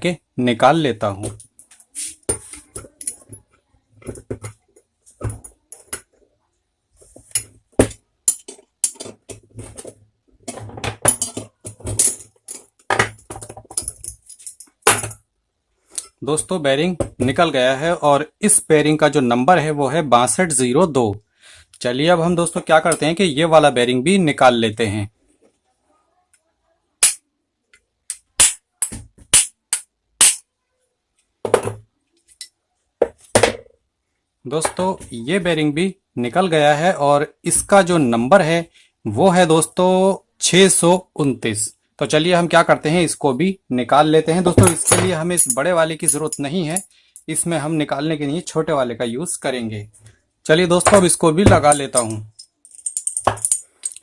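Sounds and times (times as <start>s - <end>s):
metallic tool clicks and knocks: 7.3s - 9.4s, 50.9s - 54.0s.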